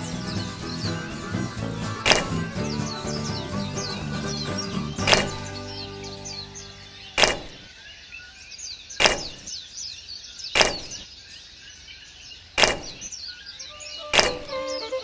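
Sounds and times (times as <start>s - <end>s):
birds chirping: 0.0s - 15.0s
sharp ringing knocks: 2.1s - 2.4s, 5.0s - 5.5s, 7.2s - 7.7s, 9.0s - 9.5s, 10.6s - 11.0s, 12.6s - 13.1s, 14.1s - 14.6s.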